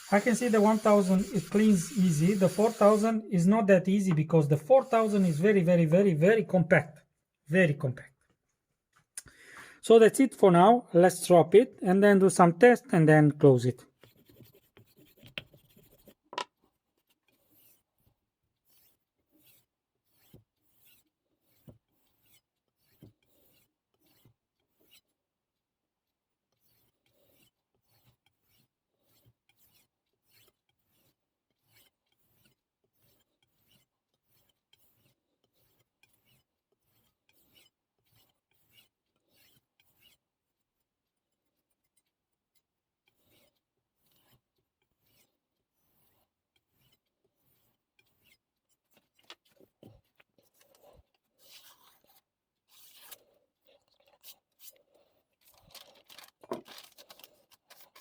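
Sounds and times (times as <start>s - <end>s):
knife being stropped: 0.0s - 3.3s, 4.1s - 5.7s, 18.7s - 25.1s, 26.6s - 40.2s, 43.0s - 55.6s.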